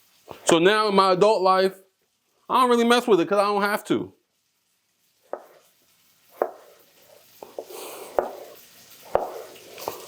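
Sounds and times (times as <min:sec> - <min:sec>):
knife chopping on cutting board: 0:05.3 - 0:05.6, 0:06.4 - 0:06.7, 0:07.5 - 0:08.5, 0:09.1 - 0:10.0.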